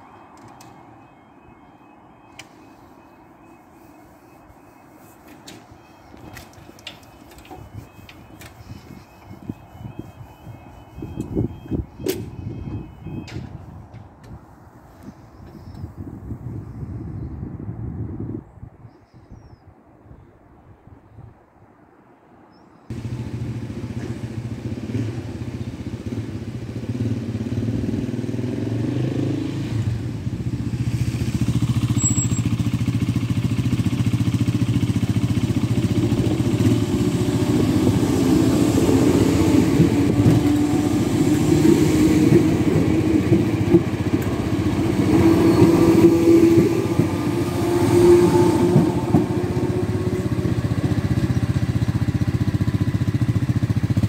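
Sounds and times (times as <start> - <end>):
traction motors whining: 0.0 - 14.1, 36.3 - 51.0
electric train passing: 0.6 - 14.7, 22.9 - 54.0
wheels clattering over rails: 35.1 - 52.9.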